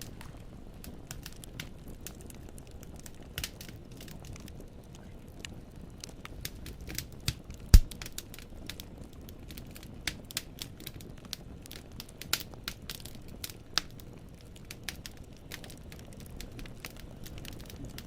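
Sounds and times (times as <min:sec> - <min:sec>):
logs crackling in fireplace: 0:00.0 - 0:18.0
loud pop with thud: 0:07.7 - 0:08.0.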